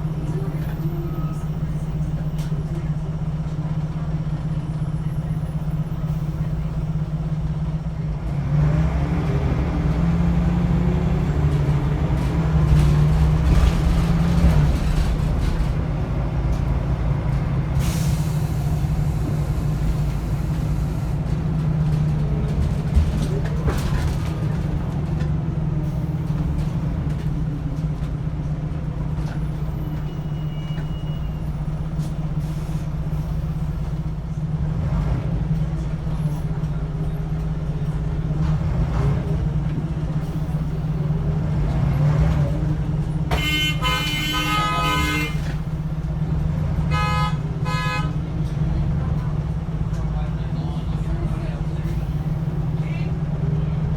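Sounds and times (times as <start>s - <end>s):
bus diesel engine running: 0.0s - 53.9s
air brake hisses: 17.8s - 21.1s.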